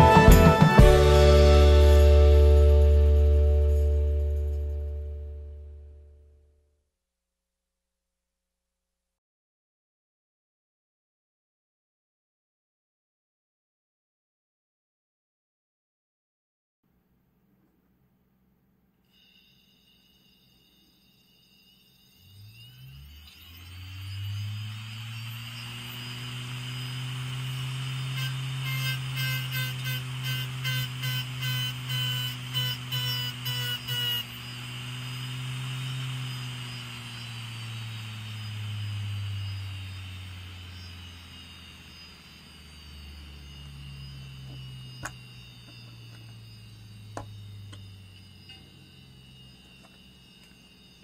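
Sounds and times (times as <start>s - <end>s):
hard drive motor hum and whine: 20.0s - 51.0s.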